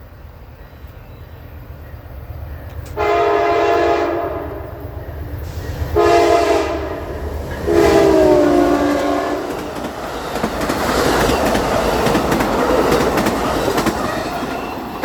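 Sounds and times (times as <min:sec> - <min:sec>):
train rumble: 0:00.0 - 0:15.0
locomotive air horn blasts: 0:03.0 - 0:04.8, 0:05.9 - 0:09.6.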